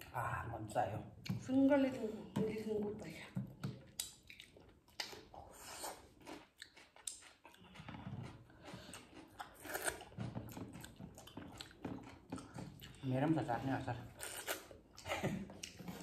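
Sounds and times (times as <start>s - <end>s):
crunchy cucumber chewing: 3.6s - 13.1s, 14.0s - 16.0s.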